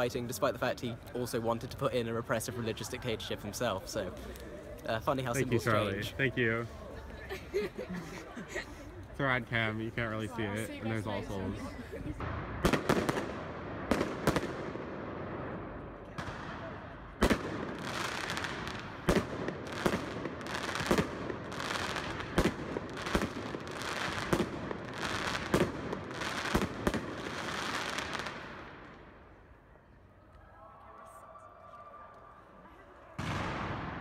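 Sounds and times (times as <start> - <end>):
fireworks crackle: 17.2 - 29.1.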